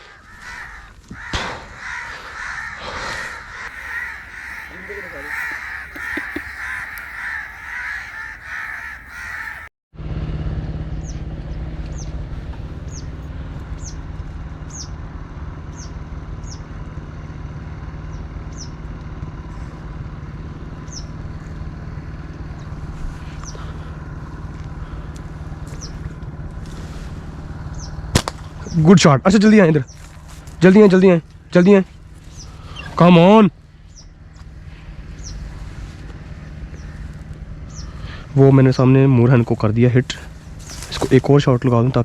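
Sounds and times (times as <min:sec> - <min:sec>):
crows cawing: 0:00.0 - 0:09.7
steady low hum: 0:03.2 - 0:09.7.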